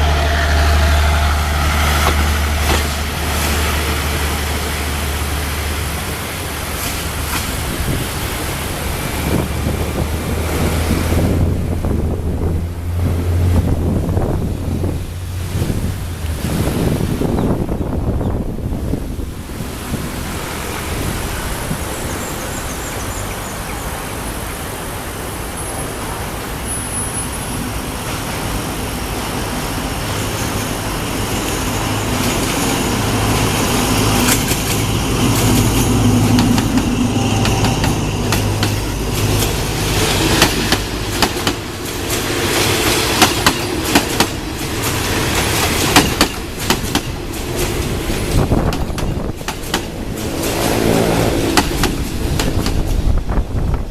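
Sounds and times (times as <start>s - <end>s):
train wheels clacking over rail joints: 0.0s - 11.4s, 29.9s - 53.3s
train engine drone: 0.0s - 53.9s.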